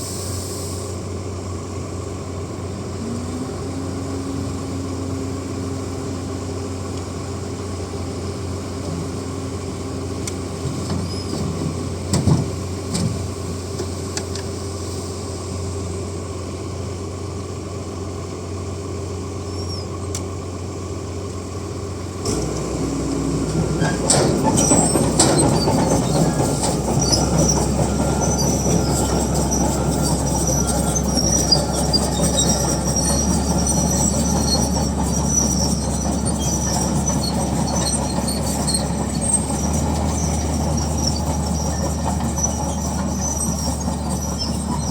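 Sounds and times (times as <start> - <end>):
bulldozer diesel engine running: 0.0 - 44.9
steel tracks squealing and clanking: 10.5 - 14.0, 22.2 - 44.9.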